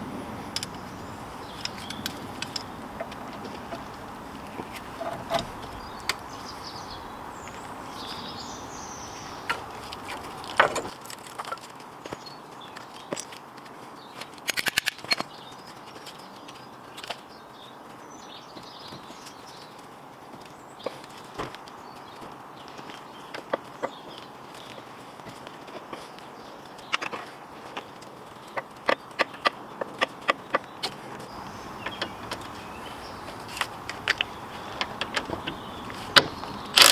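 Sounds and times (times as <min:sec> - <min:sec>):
birds chirping faintly: 0:00.0 - 0:36.9
hand tools clicking on metal: 0:00.5 - 0:06.3, 0:14.2 - 0:15.4, 0:26.7 - 0:36.9.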